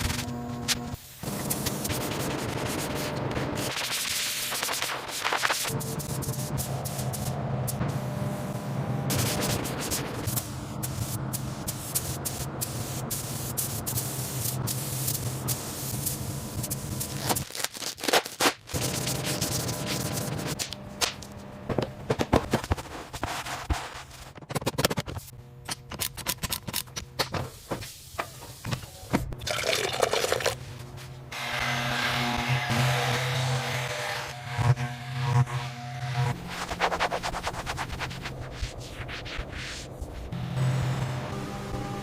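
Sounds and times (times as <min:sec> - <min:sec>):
background music with low drone: 0:40.3 - 0:42.0.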